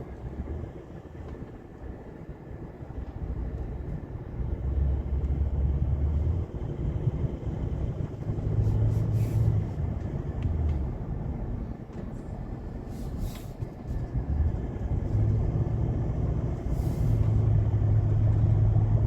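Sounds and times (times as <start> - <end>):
car rumbling in strong wind: 0.0 - 19.0.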